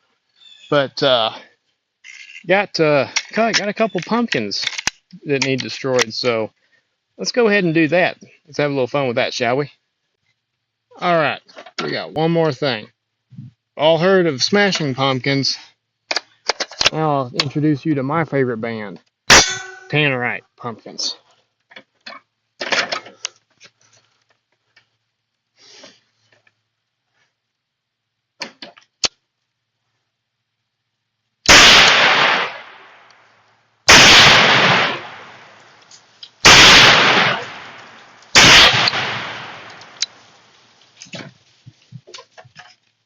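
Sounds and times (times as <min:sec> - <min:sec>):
faint clicks and handling noise: 0:01.6 - 0:07.2, 0:20.6 - 0:27.6, 0:35.5 - 0:36.4, 0:39.6 - 0:43.0
loud explosive blasts: 0:31.5 - 0:33.0, 0:33.9 - 0:35.6, 0:36.4 - 0:40.0.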